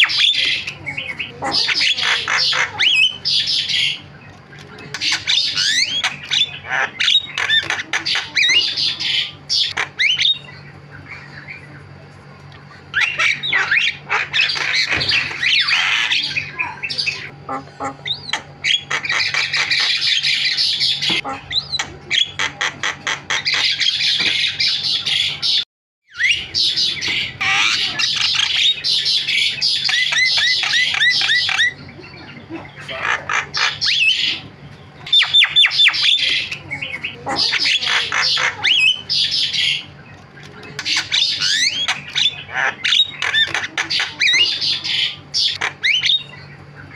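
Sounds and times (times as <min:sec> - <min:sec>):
myna bird chattering: 0:00.0 - 0:46.9.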